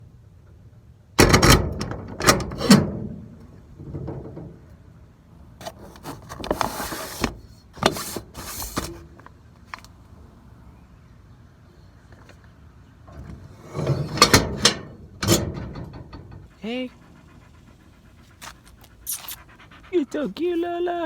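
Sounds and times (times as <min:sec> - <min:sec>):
packaging rustling and scraping: 0:05.6 - 0:09.0.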